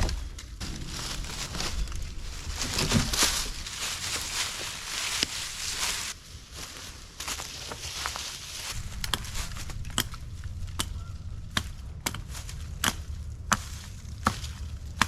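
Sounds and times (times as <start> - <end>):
tool chopping wood: 10.8 - 15.0.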